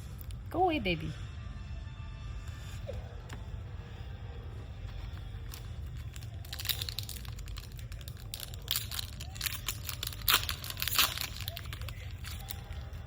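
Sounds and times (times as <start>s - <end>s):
steady low hum: 0.0s - 13.0s
card pack wrapper crinkling: 4.9s - 13.0s.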